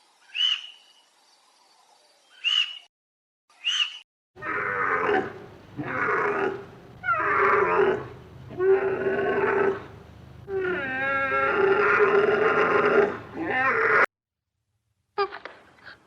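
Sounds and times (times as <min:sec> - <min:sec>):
animal calling: 0:02.4 - 0:02.9.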